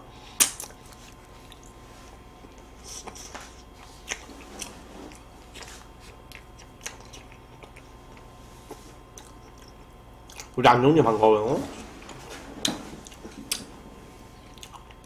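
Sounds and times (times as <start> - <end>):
biting and chewing: 3.9 - 10.6, 14.4 - 15.0.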